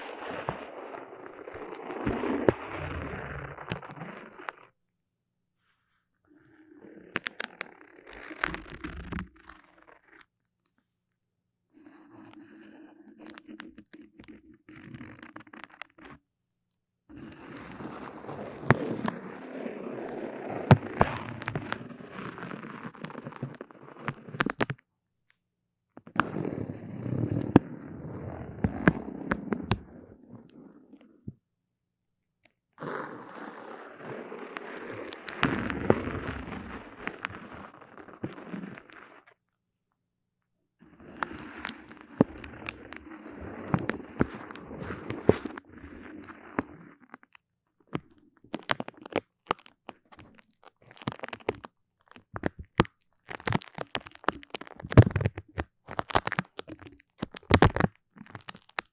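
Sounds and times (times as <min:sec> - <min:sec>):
sticky crackling and clicking: 0:00.0 - 0:02.9, 0:07.2 - 0:10.3, 0:20.6 - 0:24.8, 0:34.4 - 0:39.2, 0:41.1 - 0:47.4, 0:48.0 - 0:58.9.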